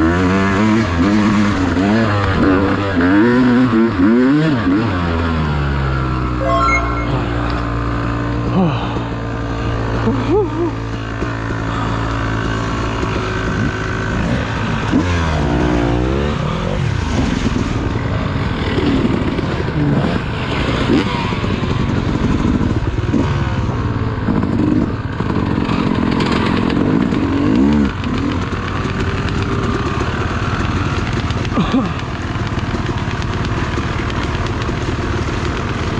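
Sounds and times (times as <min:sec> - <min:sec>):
dirt bike engine revving: 0:00.0 - 0:05.7, 0:07.8 - 0:23.4, 0:24.3 - 0:33.8.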